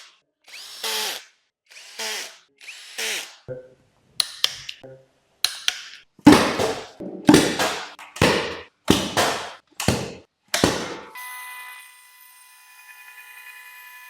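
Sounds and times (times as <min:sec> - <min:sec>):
sharp knocks: 0:06.3 - 0:11.2.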